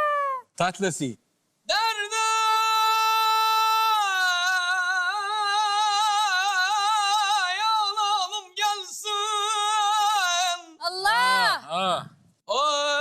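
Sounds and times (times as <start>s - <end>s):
man singing unaccompanied: 1.7s - 10.8s, 12.5s - 13.0s.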